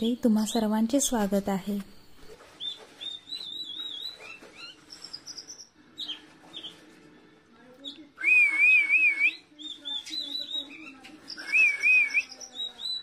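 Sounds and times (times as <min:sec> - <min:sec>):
bird whistling and chirping: 0:02.6 - 0:06.8, 0:08.2 - 0:13.0.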